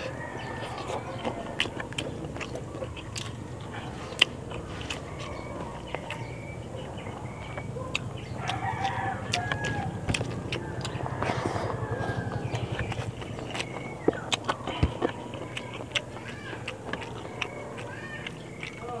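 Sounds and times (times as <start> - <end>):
rooster crowing: 0.0 - 1.7, 8.3 - 13.2
chickens clucking: 0.0 - 19.0
man chewing: 0.0 - 19.0.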